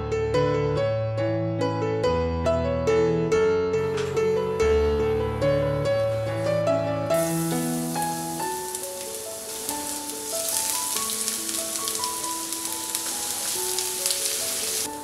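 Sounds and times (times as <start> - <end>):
garlic sizzling in hot oil: 6.0 - 15.0.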